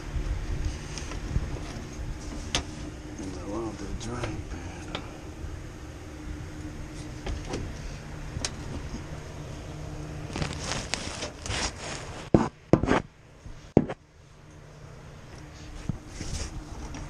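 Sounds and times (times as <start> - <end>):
steady low hum: 0.0 - 17.0
materials rubbing and scraping: 10.0 - 13.1, 15.5 - 16.9.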